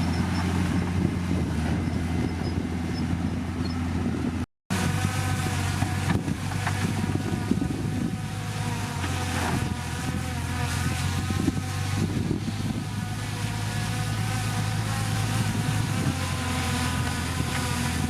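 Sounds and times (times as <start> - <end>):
diesel engine of heavy machinery: 0.0 - 18.0.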